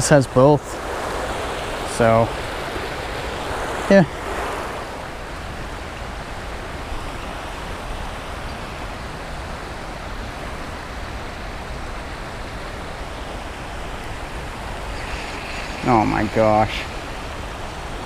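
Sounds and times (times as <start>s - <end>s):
water pouring over waterfall: 14.9s - 17.1s.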